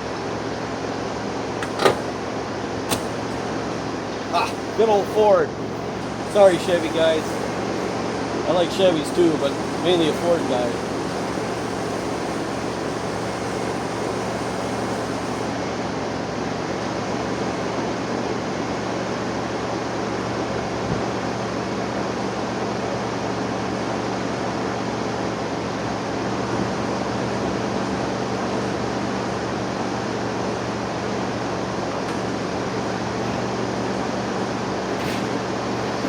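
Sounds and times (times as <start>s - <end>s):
engine running: 0.0s - 36.0s.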